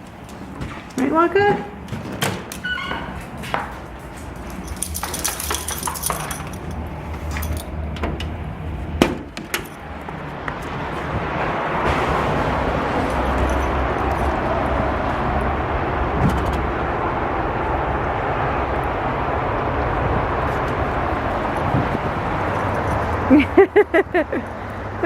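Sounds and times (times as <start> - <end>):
door opening: 0.3 - 17.0
metallic jingle of keys: 4.2 - 7.8.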